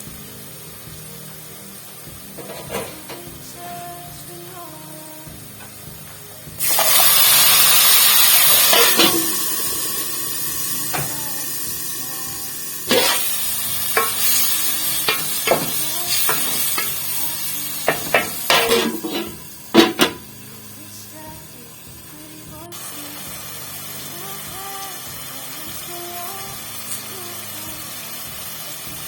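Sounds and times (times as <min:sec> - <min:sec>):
food sizzling in a pan: 0:00.0 - 0:29.0
spoon stirring and knocking pan: 0:06.7 - 0:11.2, 0:12.6 - 0:17.1, 0:17.8 - 0:20.2.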